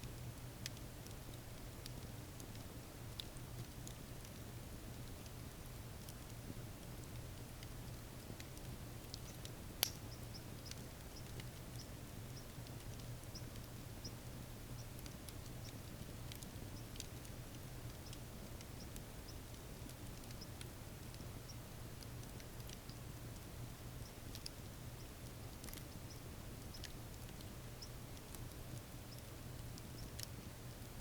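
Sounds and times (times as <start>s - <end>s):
campfire crackling and popping: 0.1s - 31.0s.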